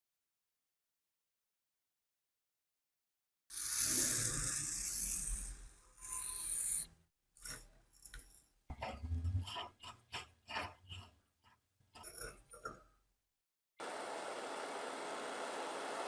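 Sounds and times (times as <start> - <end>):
quick rasping scrapes: 8.8 - 12.8.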